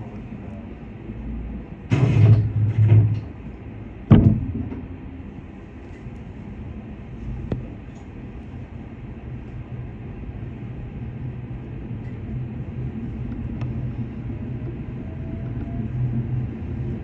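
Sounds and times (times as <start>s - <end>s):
train doors sliding shut: 1.9s - 6.3s.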